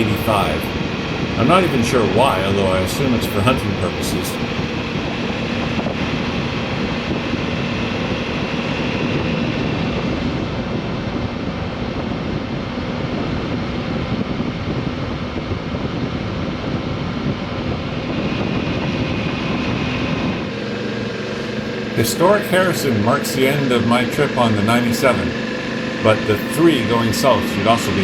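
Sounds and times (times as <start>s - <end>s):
wind rush on microphone: 0.0s - 22.0s
motorcycle engine cruising: 0.0s - 28.0s.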